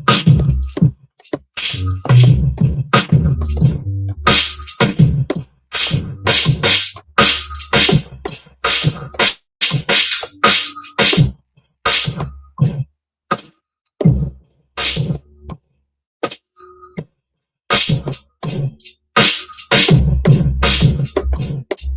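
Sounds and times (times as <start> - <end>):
hip-hop drum machine beat: 0.0 - 12.8, 17.7 - 21.9.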